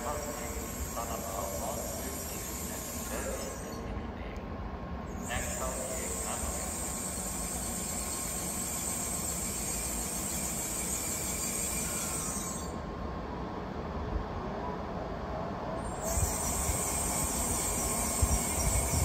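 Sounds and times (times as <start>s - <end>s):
train wheels rumbling: 15.8s - 19.0s
high hiss: 15.9s - 19.0s.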